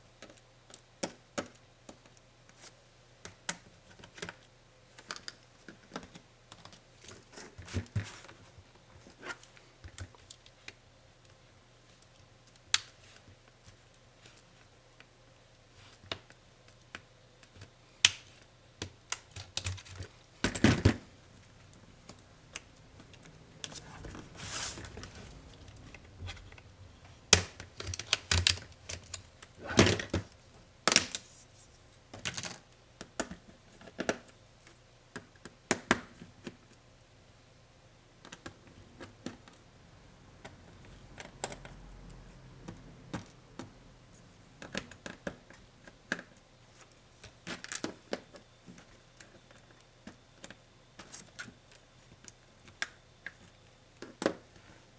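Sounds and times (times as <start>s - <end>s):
laptop parts and tools clicking: 16.1s - 31.2s
rustling scrape: 23.1s - 27.3s.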